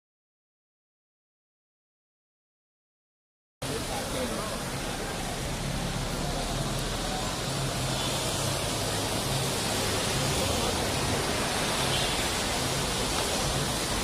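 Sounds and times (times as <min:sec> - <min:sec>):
steady rain falling: 0:03.6 - 0:14.0.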